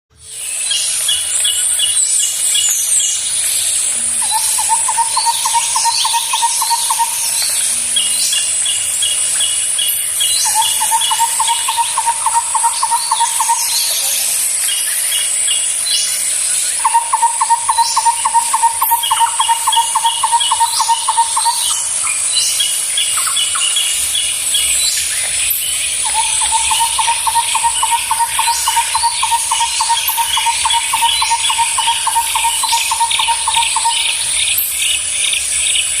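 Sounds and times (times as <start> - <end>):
high-pitched insect drone: 0.2 - 36.0
rapid repeated bird notes: 0.7 - 36.0
birds calling: 4.2 - 7.5, 10.3 - 14.2, 16.8 - 22.2, 23.2 - 34.8.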